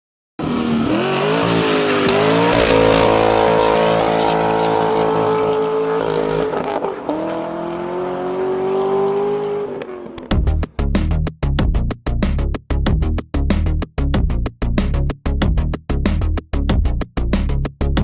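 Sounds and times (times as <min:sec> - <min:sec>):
truck engine revving: 0:00.4 - 0:10.4.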